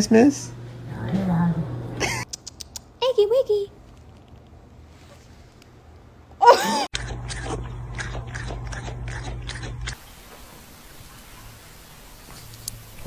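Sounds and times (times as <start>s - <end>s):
low steady hum: 6.0s - 10.0s
crunchy chewing: 6.9s - 10.0s.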